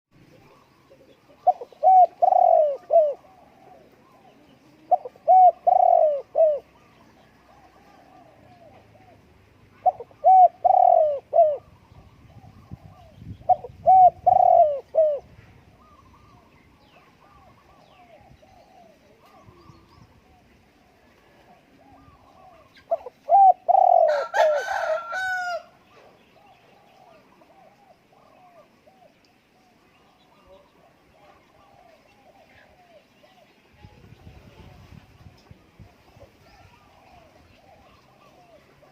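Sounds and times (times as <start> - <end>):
dove cooing: 0.2 - 33.5, 34.4 - 38.9
harsh bird calling: 9.8 - 16.5.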